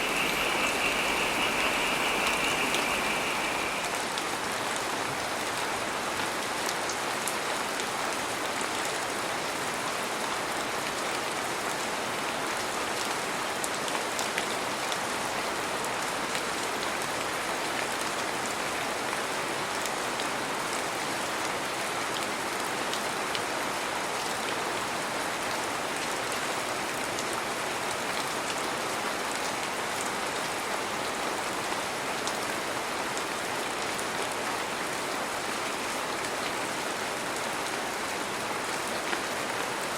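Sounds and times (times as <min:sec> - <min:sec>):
heavy rain hissing: 0:00.0 - 0:04.4.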